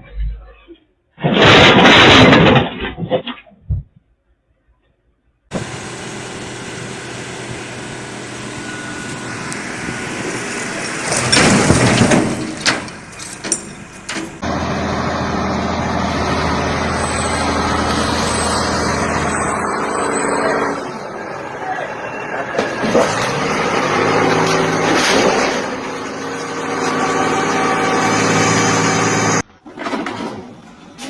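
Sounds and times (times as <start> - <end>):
heavy truck engine running: 5.5 - 29.6.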